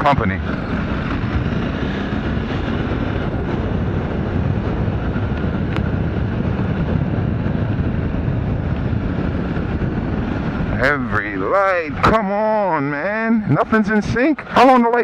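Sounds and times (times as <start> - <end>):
motorcycle engine running: 0.0 - 12.7
wind rushing over microphone: 0.0 - 15.0.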